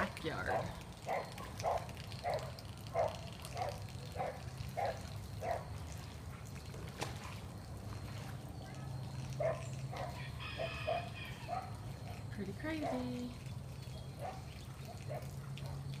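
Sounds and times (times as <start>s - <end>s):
dog barking: 0.5s - 5.7s, 9.4s - 12.2s, 14.2s - 15.8s.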